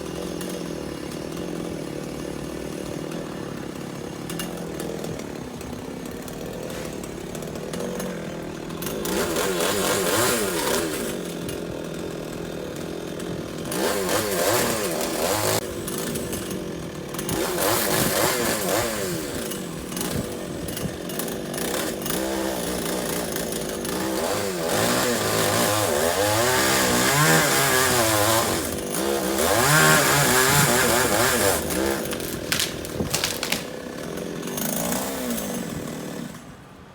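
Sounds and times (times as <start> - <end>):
chainsaw revving and cutting wood: 0.0 - 36.9.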